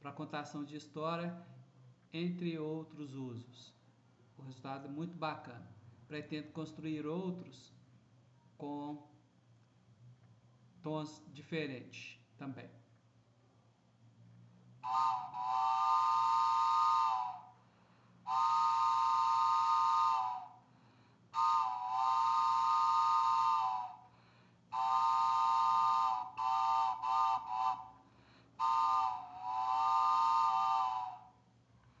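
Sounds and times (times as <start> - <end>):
wooden train whistle blasts: 14.8 - 31.5.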